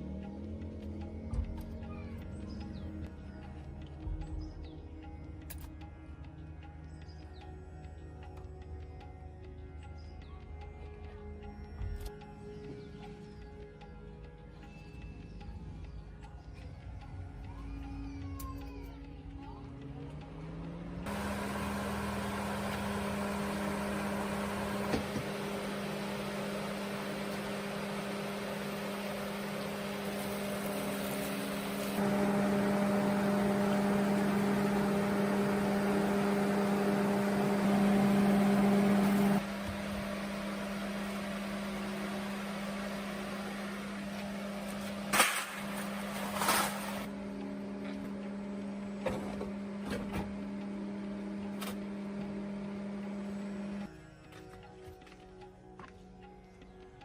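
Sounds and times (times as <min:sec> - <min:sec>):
motor humming: 0:19.8 - 0:53.9.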